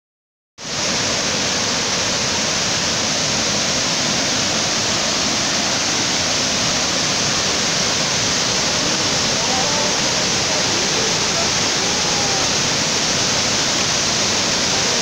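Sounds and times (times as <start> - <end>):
waterfall rushing: 0.6 - 15.0.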